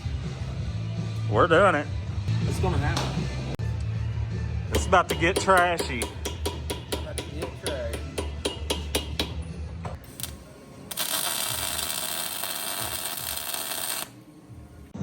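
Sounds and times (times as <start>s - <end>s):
welding hiss: 10.0s - 14.5s.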